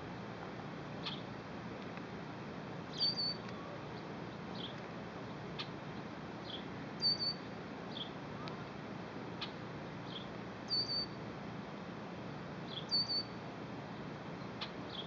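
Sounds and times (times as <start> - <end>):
open-air background hiss: 0.0 - 15.0
small birds chirping: 1.0 - 1.3, 2.9 - 8.7, 9.4 - 11.2, 12.6 - 15.0.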